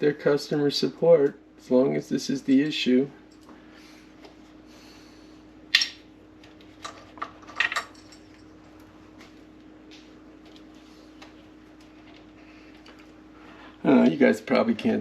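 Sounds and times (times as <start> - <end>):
faint steady hum: 0.0 - 15.0
parts clicking and clattering: 5.8 - 8.9.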